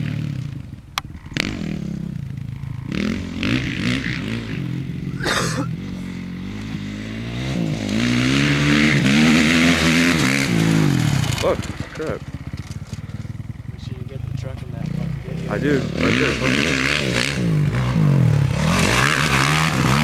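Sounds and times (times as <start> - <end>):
dirt bike engine revving: 0.0 - 20.0
scraping rattle: 10.2 - 15.6.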